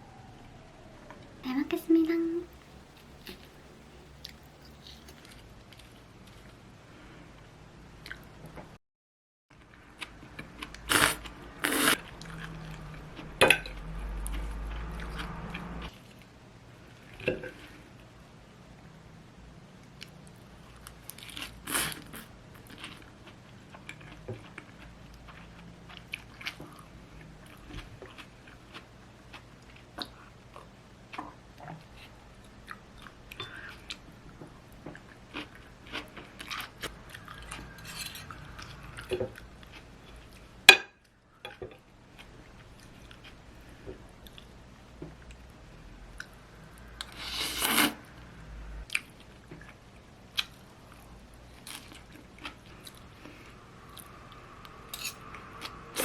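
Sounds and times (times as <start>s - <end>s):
low hum: 36.3s - 40.6s, 50.8s - 56.0s.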